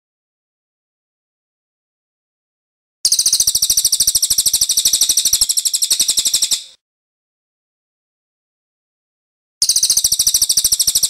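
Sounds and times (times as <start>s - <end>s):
songbird trill: 3.1s - 6.8s, 9.6s - 11.0s.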